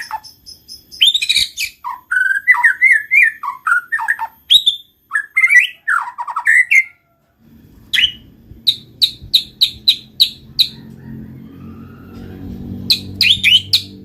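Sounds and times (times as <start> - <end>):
bird singing whistled phrases: 0.0 - 6.9, 7.9 - 10.8, 12.9 - 14.0
low steady hum: 6.9 - 14.0.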